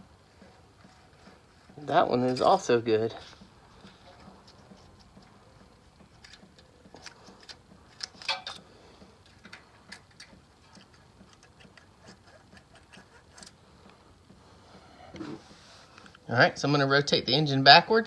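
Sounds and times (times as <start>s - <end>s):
hand tools clicking on engine valves: 3.2s - 14.4s.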